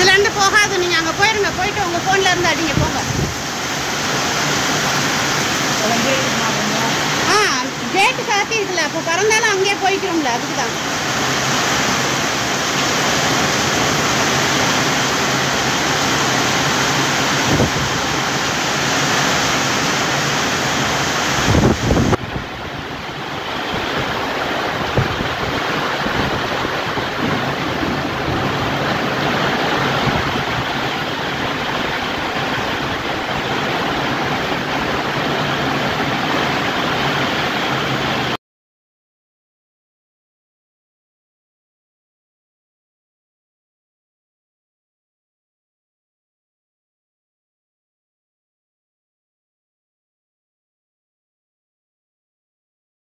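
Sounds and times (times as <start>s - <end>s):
heavy rain falling: 0.0s - 38.4s.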